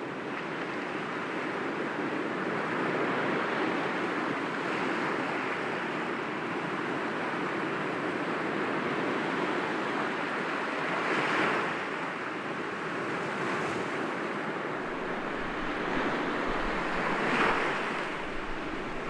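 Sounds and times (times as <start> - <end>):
waves breaking against rocks: 14.8 - 19.0.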